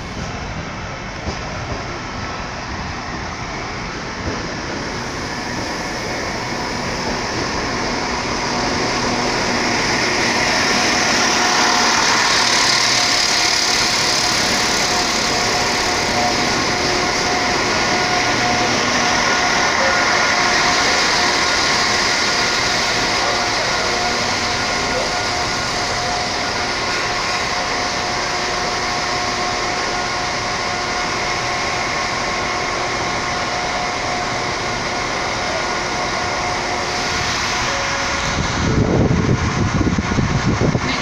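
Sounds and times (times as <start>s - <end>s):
train rumbling past: 0.0s - 41.0s.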